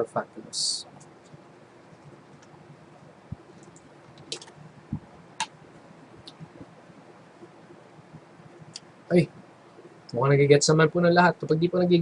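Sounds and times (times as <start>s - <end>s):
computer clicks: 3.4s - 4.6s.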